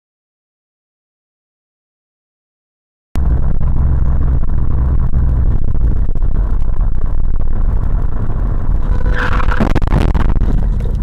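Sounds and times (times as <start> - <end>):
car engine and road noise: 3.2 - 11.0.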